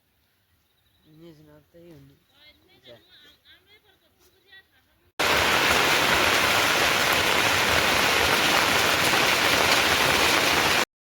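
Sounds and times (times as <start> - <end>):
heavy rain falling: 5.2 - 10.9.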